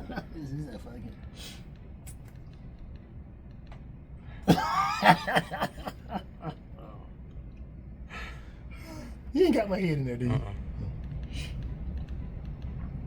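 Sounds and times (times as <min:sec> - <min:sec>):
person laughing: 0:04.5 - 0:06.6.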